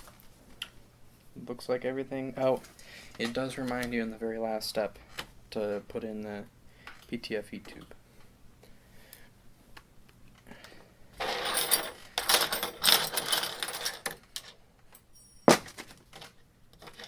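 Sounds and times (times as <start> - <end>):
metal tools clinking together: 11.2 - 15.6.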